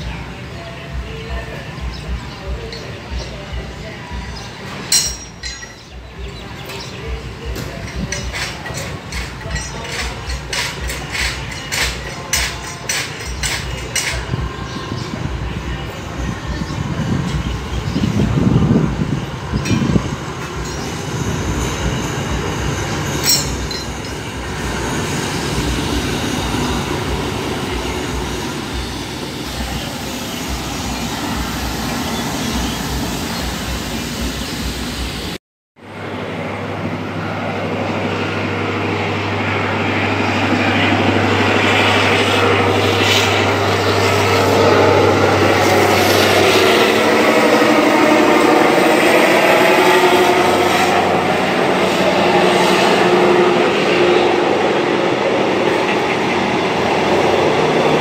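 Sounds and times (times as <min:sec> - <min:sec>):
train wheels rattling on track: 0:00.0 - 0:58.0.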